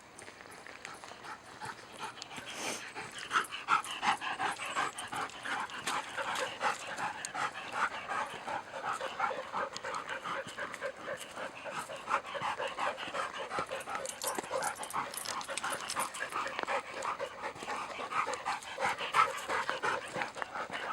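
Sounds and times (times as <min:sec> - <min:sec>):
dog panting: 0:00.8 - 0:20.9.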